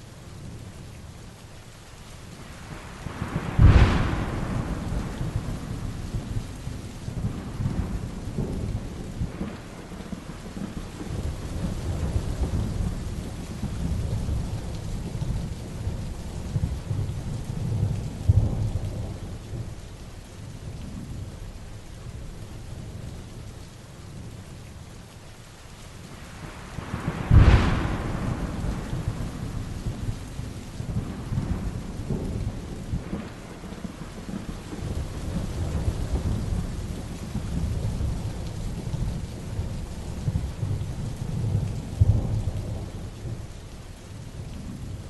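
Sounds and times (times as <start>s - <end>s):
heavy rain falling: 0.0s - 45.0s
thunder cracking and rumbling: 2.7s - 19.8s, 26.3s - 43.6s.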